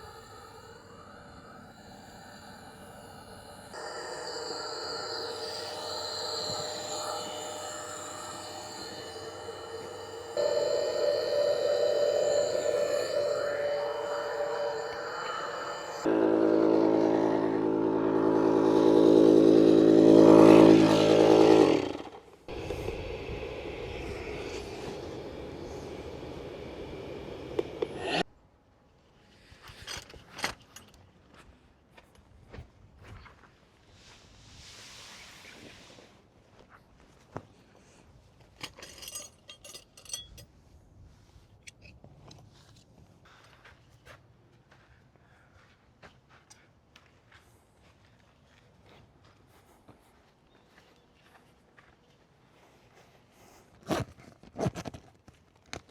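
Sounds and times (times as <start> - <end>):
electric air pump motor hum: 3.6 - 28.2.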